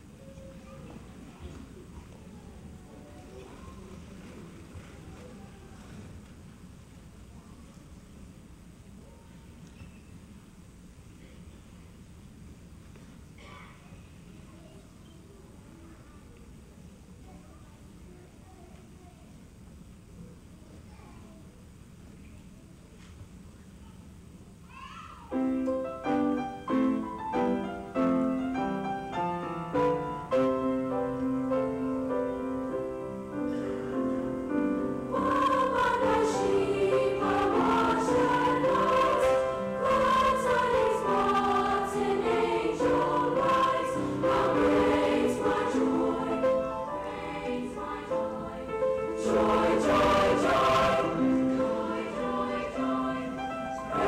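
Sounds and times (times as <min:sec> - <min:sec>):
choir singing: 0:32.0 - 0:54.0.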